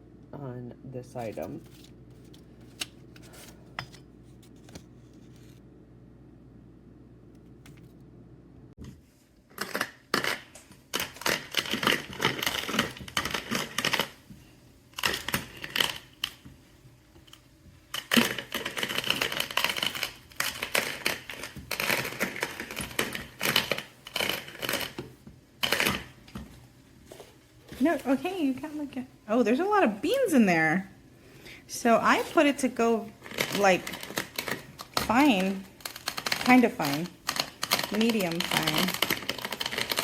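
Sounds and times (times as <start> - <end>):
coffee grinder crunching beans: 9.5 - 14.2, 15.0 - 16.4, 17.9 - 26.2, 32.0 - 40.0.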